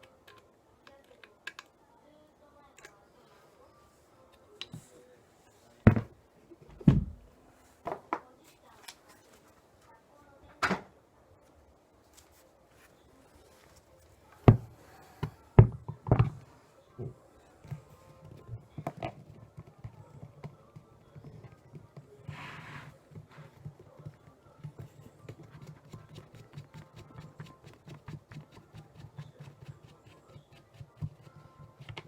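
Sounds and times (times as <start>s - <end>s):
heavy knocks and thumps: 5.9s - 7.3s.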